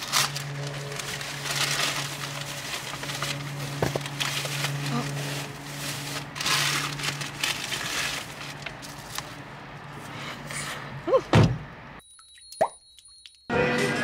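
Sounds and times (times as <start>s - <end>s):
crackly rustling: 0.0s - 10.0s.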